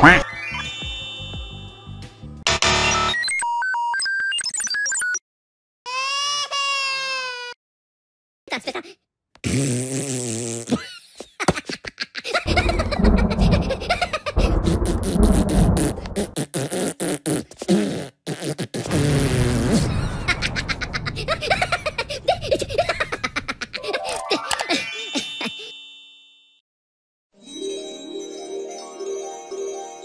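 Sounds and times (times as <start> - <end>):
low rumble: 12.5 - 16.4, 19.8 - 23.7
crackling electric zap: 18.9 - 22.9.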